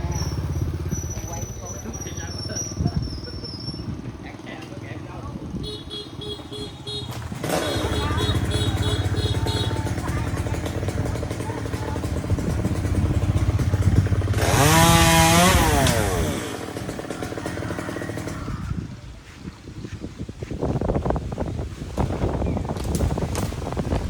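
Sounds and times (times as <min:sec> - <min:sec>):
small petrol engine revving: 0:00.0 - 0:03.3, 0:07.1 - 0:18.9.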